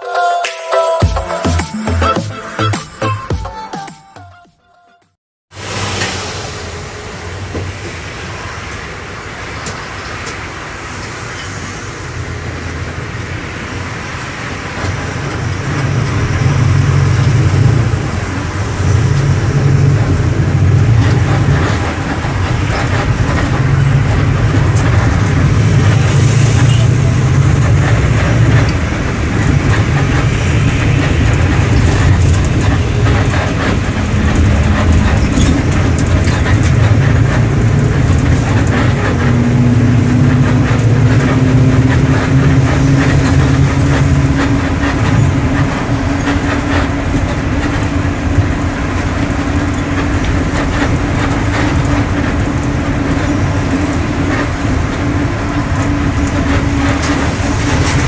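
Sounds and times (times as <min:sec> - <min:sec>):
diesel bus engine rumble: 0:05.6 - 0:58.0
rattling: 0:18.8 - 0:58.0.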